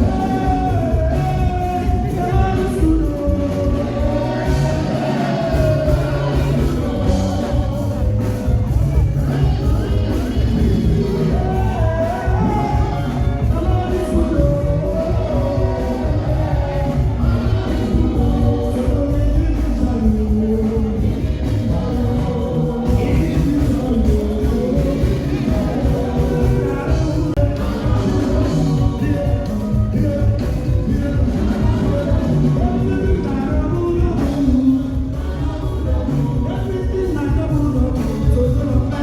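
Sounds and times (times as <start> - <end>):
heavy bass beat: 0.0 - 39.0
loud music with singing: 0.0 - 39.0.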